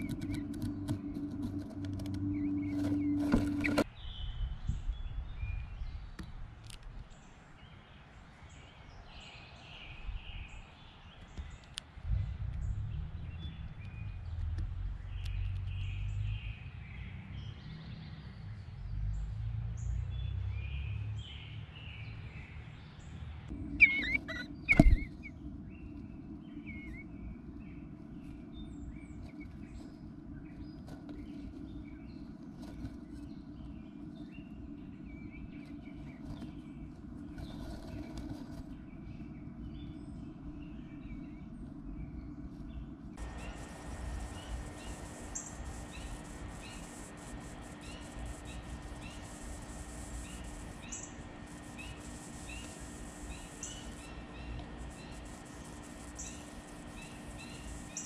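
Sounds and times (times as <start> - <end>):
low rumble: 0.0 - 3.9, 12.0 - 16.5
songbirds chirping and singing: 0.0 - 6.4, 7.0 - 58.0
steady low hum: 0.0 - 9.1, 22.3 - 58.0.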